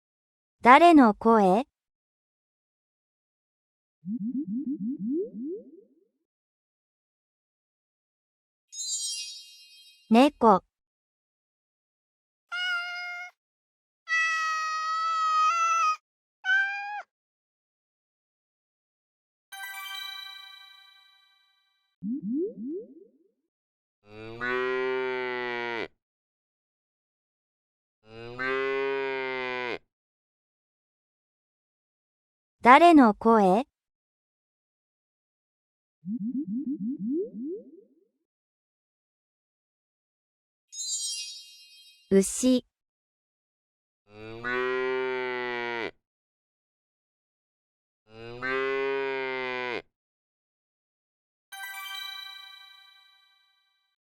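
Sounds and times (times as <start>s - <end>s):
cow mooing: 24.1s - 25.9s, 28.1s - 29.8s, 44.1s - 46.0s, 48.1s - 49.9s.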